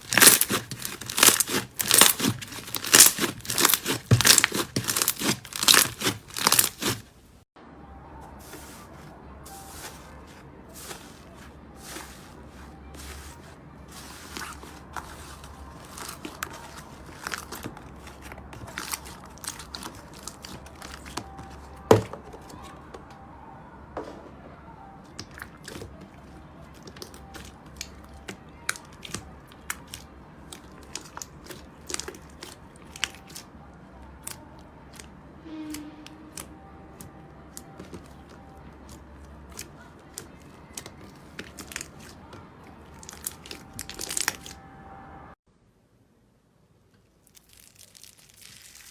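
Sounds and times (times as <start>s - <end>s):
slime crackling and popping: 0.0s - 7.1s, 14.4s - 21.6s, 42.9s - 44.6s, 47.2s - 48.9s.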